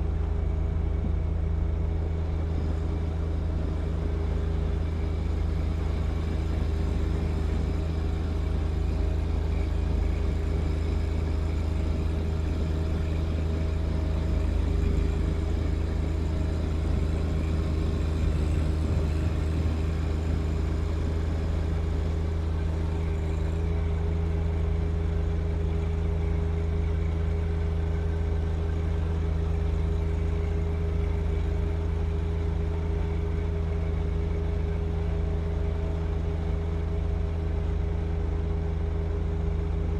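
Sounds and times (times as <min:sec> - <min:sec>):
tractor diesel engine running: 0:00.0 - 0:39.9
snow blower clearing snow: 0:02.7 - 0:23.7.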